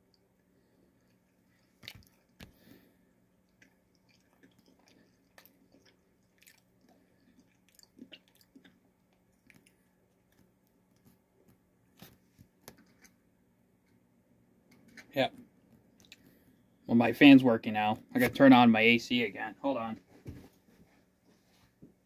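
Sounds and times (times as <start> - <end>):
crunchy snack chewing: 1.6 - 2.6, 3.5 - 10.5.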